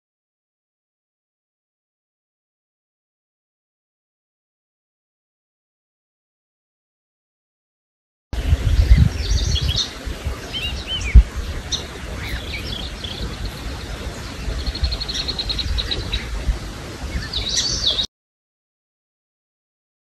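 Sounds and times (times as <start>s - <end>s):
low microphone rumble: 8.4s - 18.1s
songbirds singing and chirping: 8.4s - 18.1s
bird trill: 8.8s - 16.4s, 17.1s - 18.1s.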